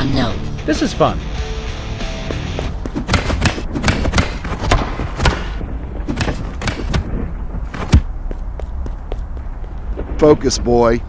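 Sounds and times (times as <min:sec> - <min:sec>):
punches and kicks thudding: 0:02.9 - 0:08.1.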